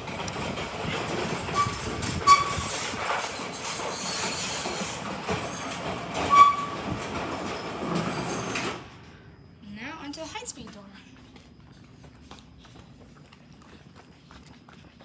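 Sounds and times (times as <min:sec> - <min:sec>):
garage door rattling rumble: 0:00.0 - 0:09.4
high squeaks: 0:00.2 - 0:08.9.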